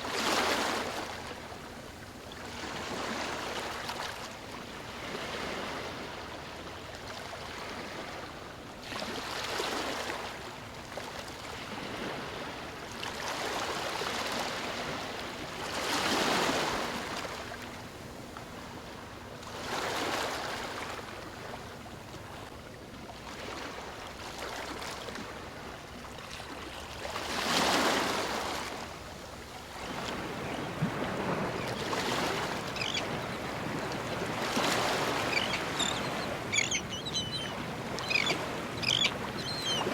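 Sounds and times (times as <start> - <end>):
ocean waves crashing: 29.8 - 39.9.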